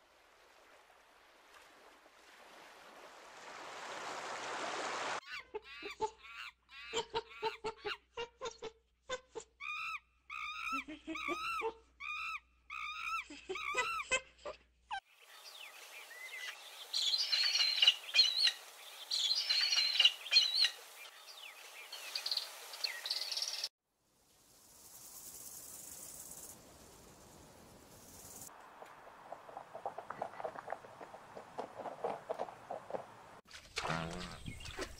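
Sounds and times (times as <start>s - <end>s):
songbirds chirping and trilling: 15.1s - 23.7s, 34.2s - 34.9s
faint high hiss: 15.2s - 29.1s.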